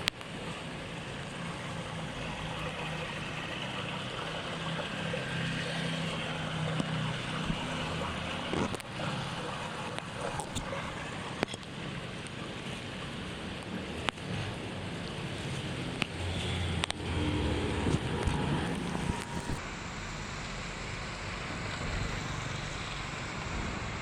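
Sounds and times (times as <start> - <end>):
flowing floodwater: 0.0 - 24.0
heavy rain: 0.0 - 24.0
low hum: 16.2 - 24.0.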